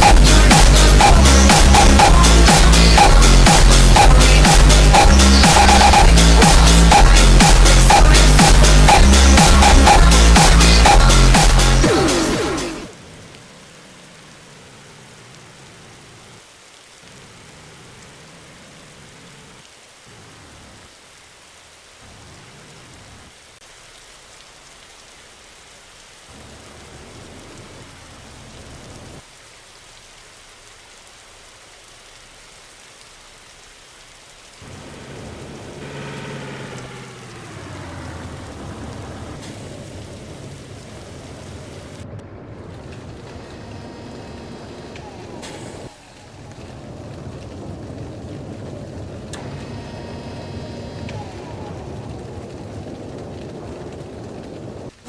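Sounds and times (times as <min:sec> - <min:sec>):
falling whine: 0:00.0 - 0:13.0, 0:34.6 - 0:47.5
heavy rain: 0:00.0 - 0:55.0
wind: 0:00.0 - 0:55.0.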